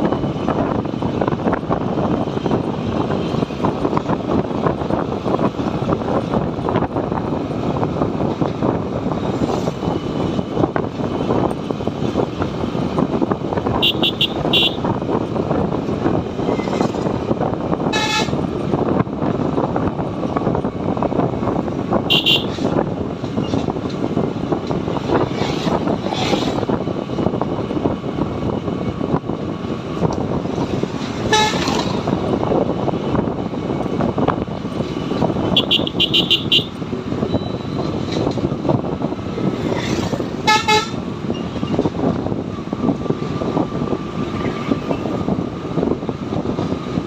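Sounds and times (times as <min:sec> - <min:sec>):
motorcycle engine and road noise: 0:00.0 - 0:47.0
vehicle horns honking: 0:13.7 - 0:14.9, 0:17.8 - 0:18.4, 0:22.1 - 0:22.8, 0:31.2 - 0:31.9, 0:35.5 - 0:37.7, 0:40.4 - 0:41.0.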